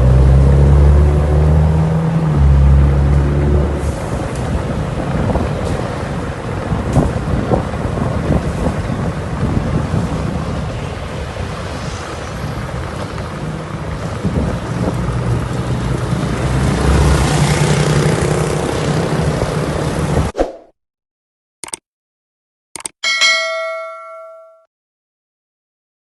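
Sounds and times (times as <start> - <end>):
wind and road rumble: 0.0 - 20.4.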